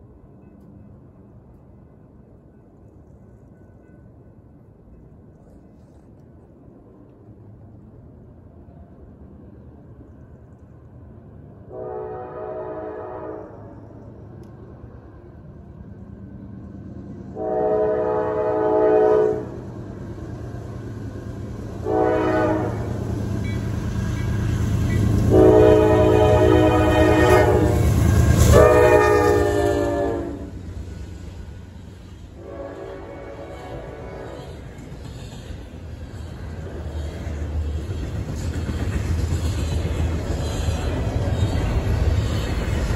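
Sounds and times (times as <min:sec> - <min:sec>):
train rumbling past: 0:00.0 - 0:42.9
locomotive horn blasts: 0:11.7 - 0:13.6, 0:17.4 - 0:19.5, 0:21.8 - 0:23.0, 0:25.3 - 0:30.5, 0:32.4 - 0:34.4.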